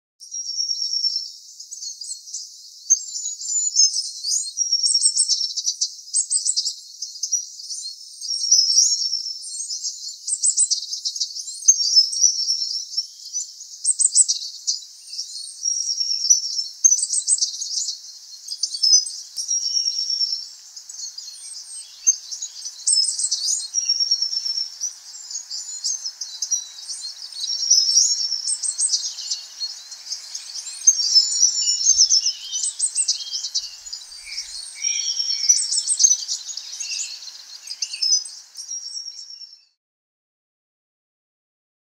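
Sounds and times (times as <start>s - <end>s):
faint low hiss: 12.8s - 39.7s
birds chirping and trilling: 13.0s - 39.7s.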